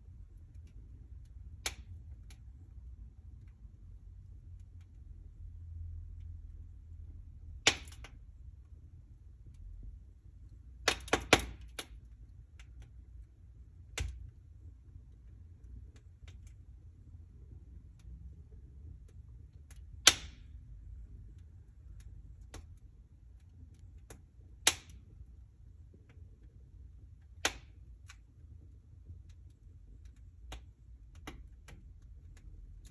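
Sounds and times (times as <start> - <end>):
low steady rumble: 0.0 - 32.9
wood fire crackling and popping: 0.0 - 32.9.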